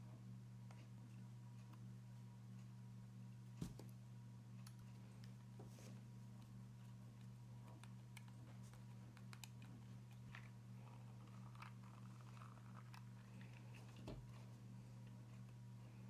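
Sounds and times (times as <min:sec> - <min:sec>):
steady low hum: 0:00.0 - 0:16.0
small parts clicking and tapping: 0:07.2 - 0:14.1.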